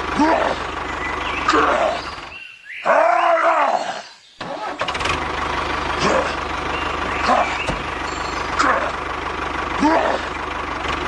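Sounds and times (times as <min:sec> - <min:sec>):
small engine chugging: 0:00.0 - 0:02.4, 0:04.4 - 0:11.0.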